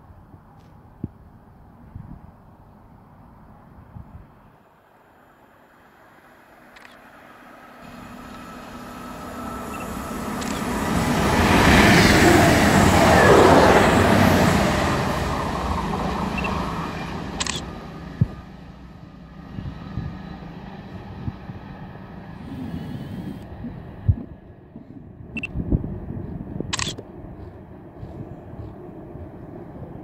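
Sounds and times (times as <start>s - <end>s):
train passing at speed: 4.4s - 30.0s
camera shutter click: 6.8s - 7.0s, 17.4s - 17.7s, 26.8s - 27.0s.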